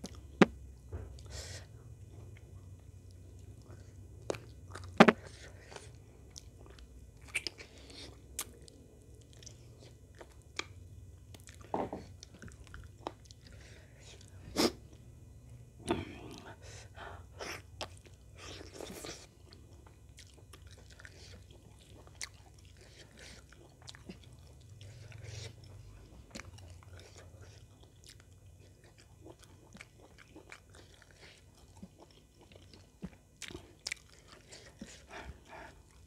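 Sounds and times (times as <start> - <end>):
wet chewing: 3.1 - 14.3, 17.8 - 36.0
lip smacks: 7.2 - 7.6.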